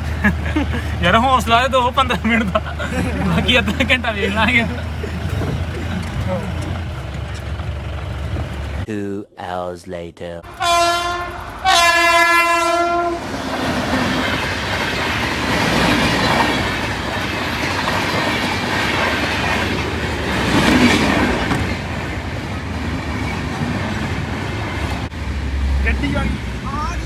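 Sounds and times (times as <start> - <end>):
passenger train rumbling past: 0.0 - 8.9, 10.4 - 27.0
wheels clattering over rails: 2.3 - 8.9, 13.2 - 25.1
train horn: 10.5 - 13.3.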